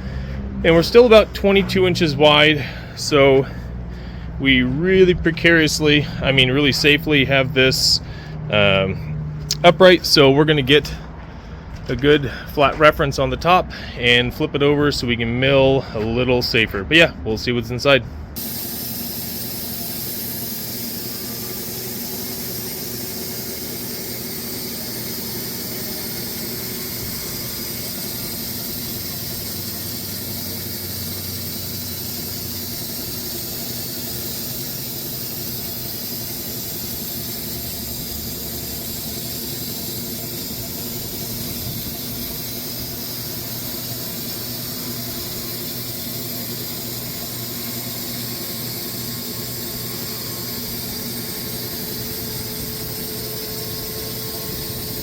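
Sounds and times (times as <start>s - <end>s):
band sawmill engine hum: 0.0s - 55.0s
saw blade hissing through log: 2.4s - 4.2s, 18.4s - 55.0s.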